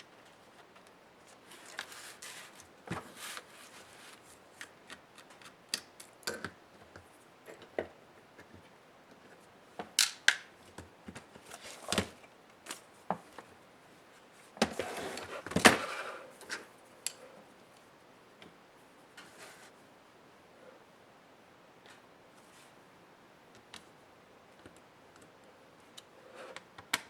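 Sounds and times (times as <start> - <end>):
scraping and rustling: 0.3 - 4.6, 14.6 - 16.7.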